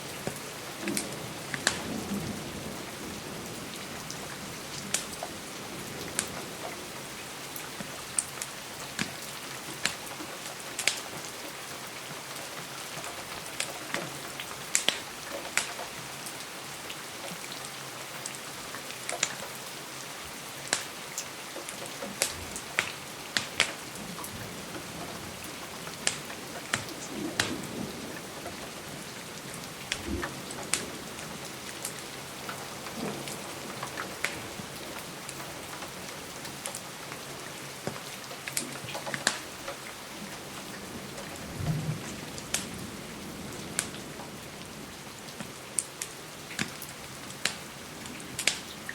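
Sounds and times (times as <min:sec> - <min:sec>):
steady rain: 0:00.0 - 0:48.9
wood fire crackling: 0:14.7 - 0:15.8, 0:20.7 - 0:40.9, 0:45.3 - 0:48.9.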